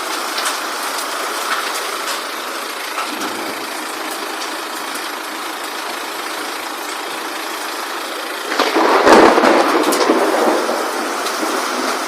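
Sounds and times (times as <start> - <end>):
hail and rain pelting: 0.0 - 12.0
hailstones clicking: 0.0 - 12.0
low rumble: 2.9 - 12.0.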